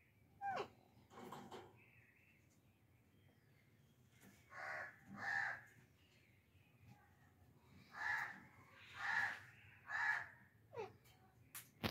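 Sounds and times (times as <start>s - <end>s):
harsh bird squawks: 8.0s - 10.9s.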